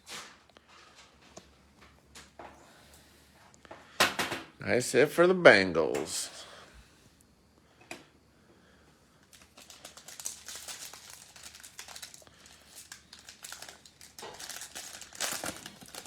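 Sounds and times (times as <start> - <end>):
wrapper crinkling: 9.2 - 16.0.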